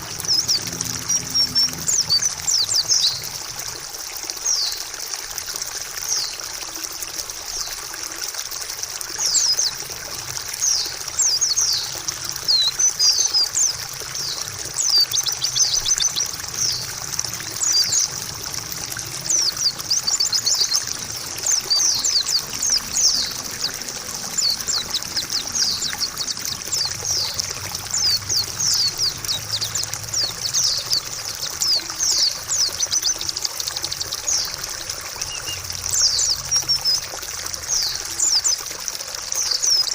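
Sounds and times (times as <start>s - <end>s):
water trickling: 0.0s - 39.9s
bird chirping: 10.6s - 16.9s, 19.2s - 37.1s.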